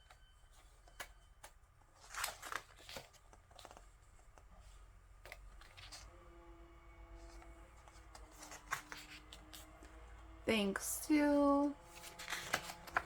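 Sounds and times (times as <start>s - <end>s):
paper pages rustling: 0.5s - 6.1s, 7.2s - 10.0s, 11.8s - 13.0s.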